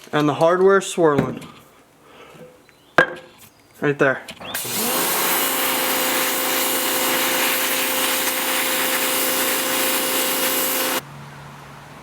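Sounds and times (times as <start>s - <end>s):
small motor cleaner hissing: 4.5s - 11.0s.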